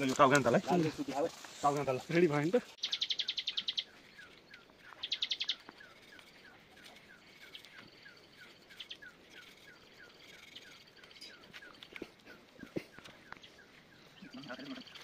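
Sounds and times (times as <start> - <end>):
bird repeating falling chirp: 2.8 - 3.9, 5.0 - 5.6
high bird chirps: 2.8 - 15.0.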